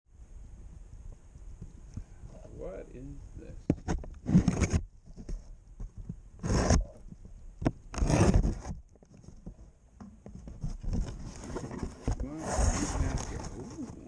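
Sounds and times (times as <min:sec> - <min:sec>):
rubbing scraping noise: 0:03.8 - 0:07.2, 0:07.9 - 0:14.0.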